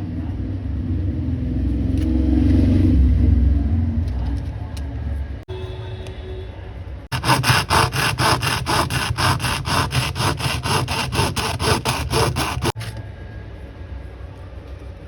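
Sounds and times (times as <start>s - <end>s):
fast back-and-forth scraping: 7.1s - 12.9s.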